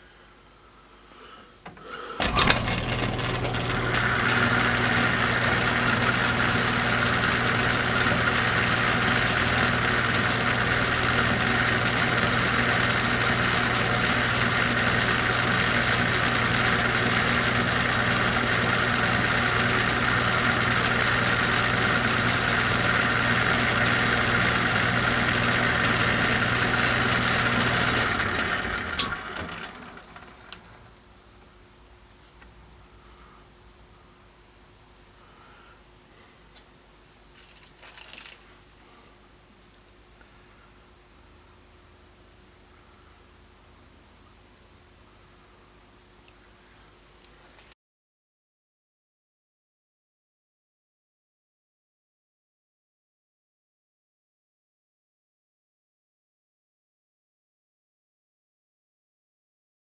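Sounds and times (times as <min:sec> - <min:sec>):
electric machine humming and whining: 0:01.7 - 0:31.0.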